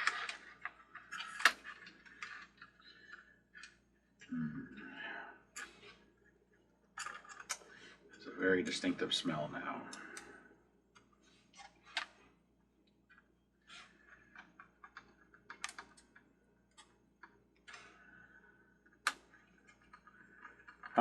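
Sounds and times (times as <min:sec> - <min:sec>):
small plastic parts clicking: 0:00.0 - 0:04.3, 0:07.0 - 0:07.8, 0:13.1 - 0:21.0.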